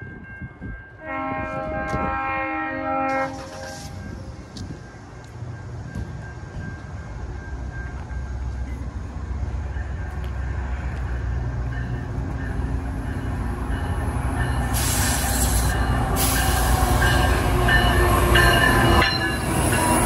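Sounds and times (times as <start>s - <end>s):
diesel train rumble: 0.0s - 20.0s
train hiss: 3.1s - 4.6s, 14.6s - 17.4s.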